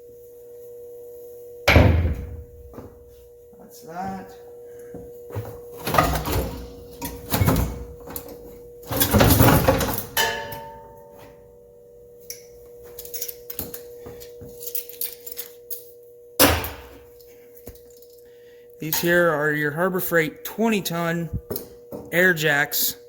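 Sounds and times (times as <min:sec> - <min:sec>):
faint steady hum: 0:00.0 - 0:23.0
heavy tools clunking: 0:05.3 - 0:10.8.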